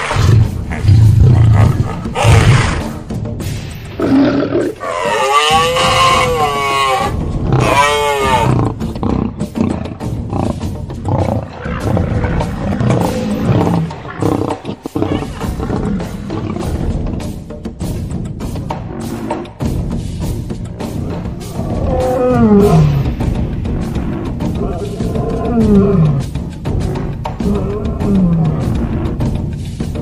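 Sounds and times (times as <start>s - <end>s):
rough noisy animal sounds: 4.0s - 17.5s, 20.8s - 29.5s.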